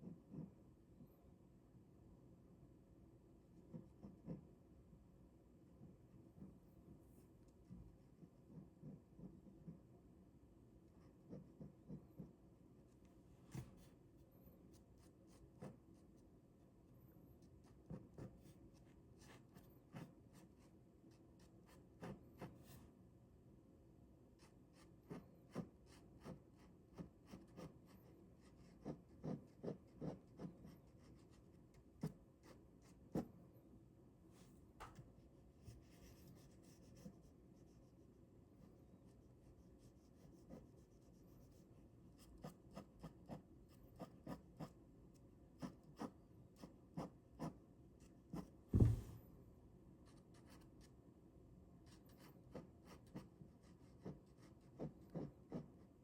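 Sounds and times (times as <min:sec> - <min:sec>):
ballpoint pen scratching on paper: 0:11.0 - 0:12.4, 0:14.7 - 0:16.0, 0:17.4 - 0:20.7, 0:24.4 - 0:33.3, 0:35.7 - 0:38.0, 0:39.5 - 0:41.6, 0:42.2 - 0:44.8, 0:45.6 - 0:47.6, 0:48.3 - 0:49.1, 0:51.8 - 0:55.8.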